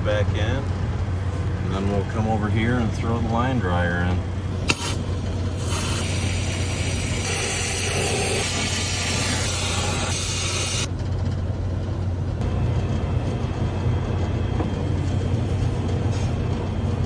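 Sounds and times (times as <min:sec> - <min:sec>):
hvac equipment humming: 0:00.0 - 0:17.0
loud hiss: 0:04.6 - 0:10.9.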